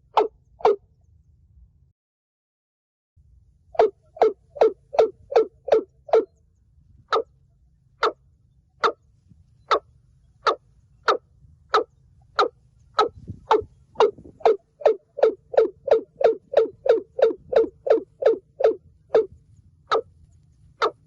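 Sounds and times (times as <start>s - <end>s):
bird calling hollow notes: 0.0s - 0.9s, 3.8s - 6.4s, 7.0s - 7.3s, 8.0s - 21.0s.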